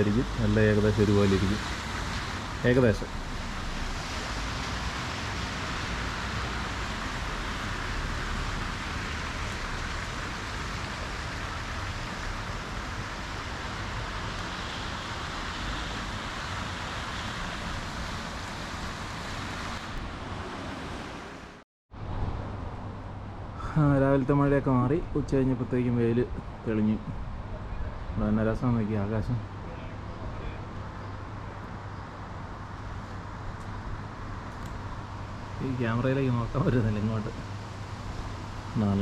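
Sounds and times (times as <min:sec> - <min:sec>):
rain falling: 0:00.0 - 0:21.6.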